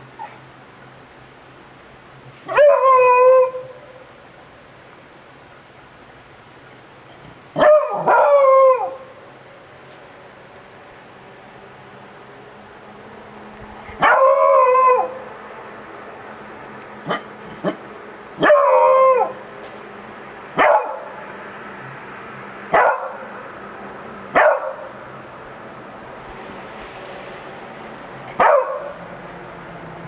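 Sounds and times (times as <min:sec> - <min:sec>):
dog howling barks: 0:02.5 - 0:04.1, 0:07.6 - 0:09.2, 0:14.0 - 0:15.3, 0:18.4 - 0:19.4, 0:20.6 - 0:21.2, 0:22.7 - 0:23.3, 0:24.3 - 0:24.9, 0:28.3 - 0:29.0.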